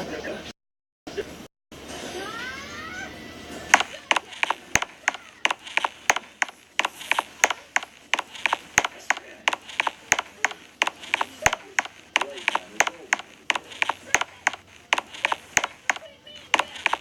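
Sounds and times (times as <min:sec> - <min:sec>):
sharp rhythmic tapping: 0:03.7 - 0:17.0.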